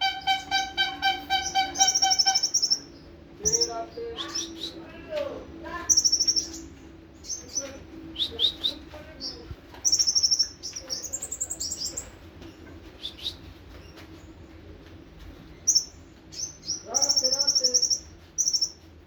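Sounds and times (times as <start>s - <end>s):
sunbird trilling and chirping: 0.0s - 4.9s, 5.7s - 12.2s, 15.5s - 18.8s.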